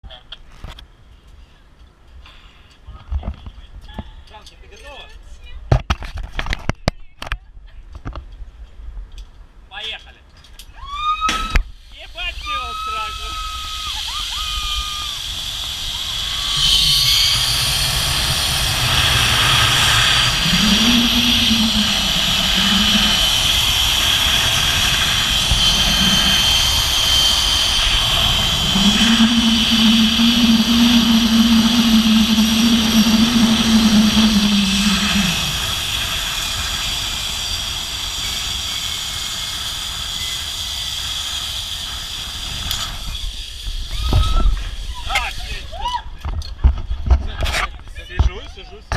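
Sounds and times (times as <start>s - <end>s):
zipline trolley whining on cable: 12.3s - 45.9s
wind rushing across microphone: 14.0s - 45.7s.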